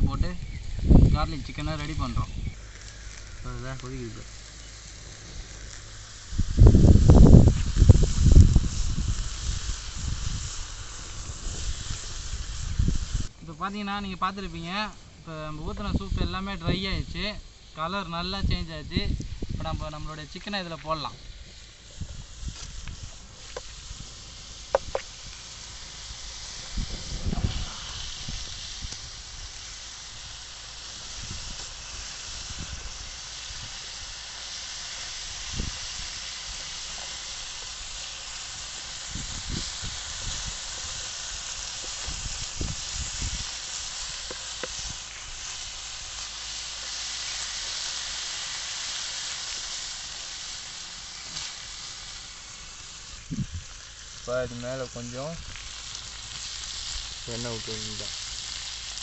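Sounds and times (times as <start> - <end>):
chicken sizzling in a pan: 0.0 - 59.0.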